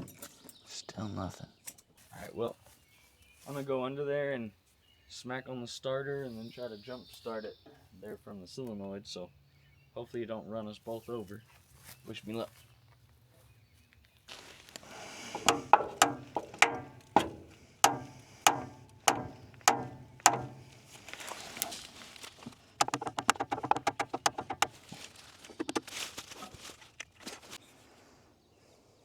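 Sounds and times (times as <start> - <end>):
rattling taps on metal: 15.2 - 25.0
metallic knocks on starter motor: 15.3 - 21.8, 22.8 - 24.8.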